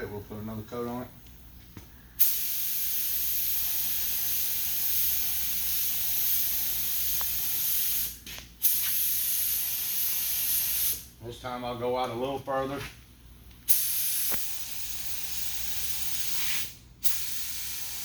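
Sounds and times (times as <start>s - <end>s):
spray gun hissing: 2.2s - 11.1s, 13.7s - 18.0s.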